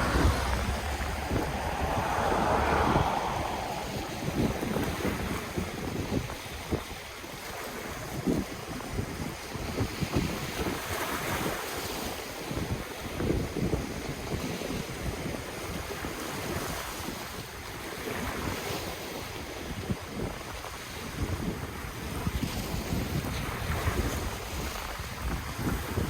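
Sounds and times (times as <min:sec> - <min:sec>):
ocean waves surf hiss: 0:00.0 - 0:06.8
wind buffeting microphone: 0:00.0 - 0:18.7.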